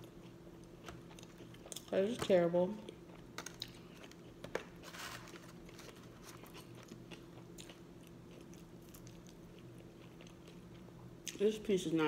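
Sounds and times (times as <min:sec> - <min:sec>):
meat being chewed: 0:05.2 - 0:11.4.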